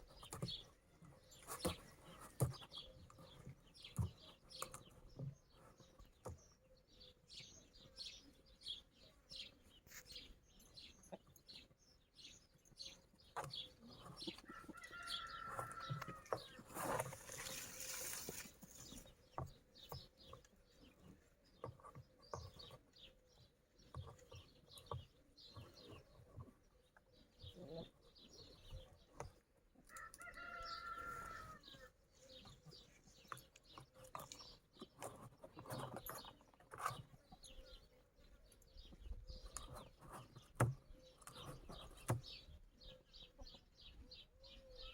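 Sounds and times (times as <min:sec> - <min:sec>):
rooster crowing: 0:30.0 - 0:31.6.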